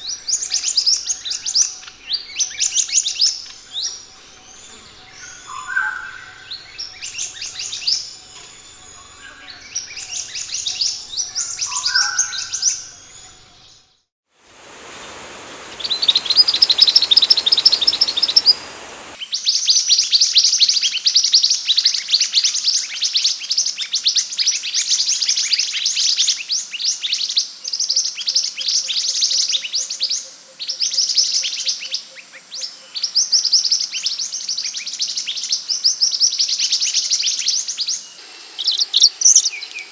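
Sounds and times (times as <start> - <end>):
bird chirping and twittering: 0.0 - 13.6, 14.6 - 19.2, 36.7 - 39.9
hiss: 14.4 - 19.2, 38.0 - 39.9.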